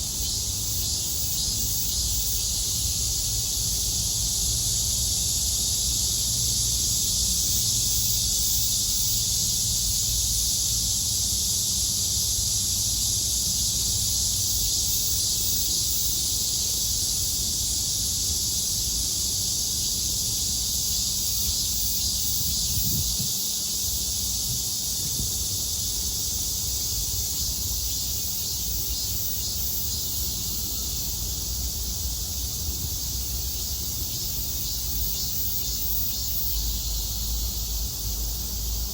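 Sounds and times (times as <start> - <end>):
cicadas droning: 0.0 - 38.9.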